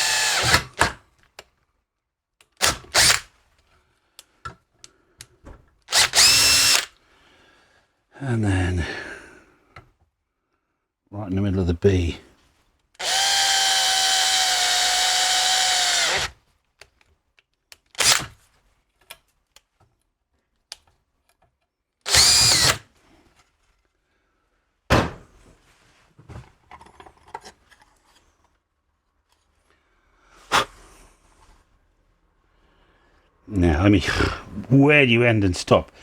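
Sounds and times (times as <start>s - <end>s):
power drill running: 0.0s - 0.9s, 2.6s - 3.2s, 5.9s - 6.9s, 13.0s - 16.4s, 18.0s - 18.3s, 22.1s - 22.8s.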